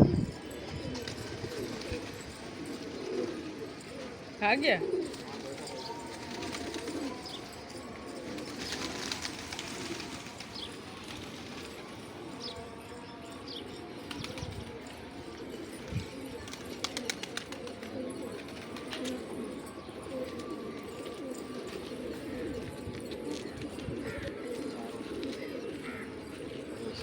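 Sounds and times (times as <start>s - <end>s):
pigeons cooing: 0.0s - 27.0s.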